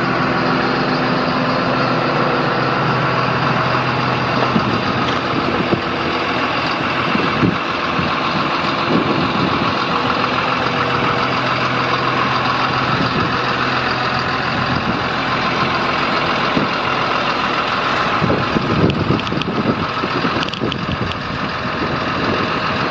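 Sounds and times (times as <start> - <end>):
diesel engine droning: 0.0 - 22.9.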